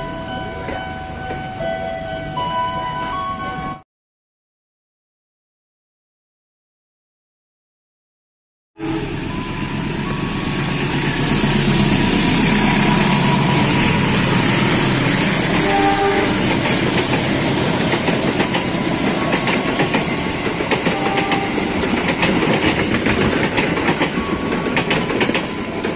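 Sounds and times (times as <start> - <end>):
train passing close by: 0.0 - 3.8, 8.8 - 25.9
wheels clicking over rail joints: 11.2 - 25.9.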